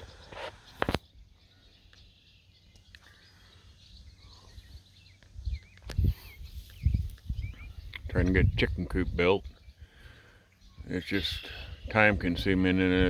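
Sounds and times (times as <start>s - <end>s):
faint bird chirps: 0.0s - 12.6s
wind buffeting microphone: 4.3s - 13.0s.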